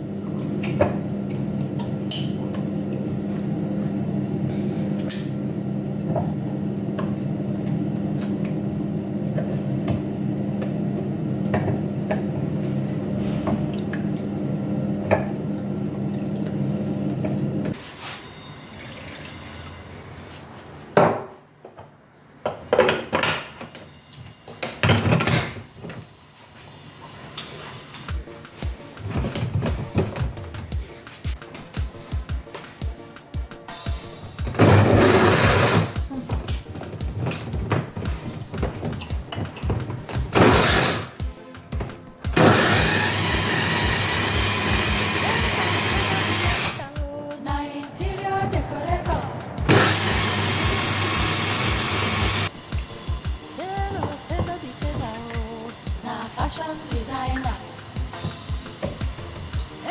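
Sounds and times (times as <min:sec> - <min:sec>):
kitchen appliance motor humming: 0:34.6 - 0:36.2, 0:38.7 - 0:41.2, 0:42.4 - 0:46.8, 0:49.7 - 0:59.9.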